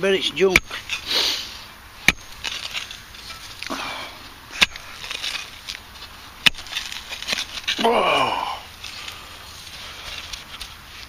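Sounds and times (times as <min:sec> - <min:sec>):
digging tool striking soil: 0:00.5 - 0:01.1, 0:02.0 - 0:03.7, 0:04.5 - 0:08.3
soil crumbling and scraping: 0:02.1 - 0:11.0.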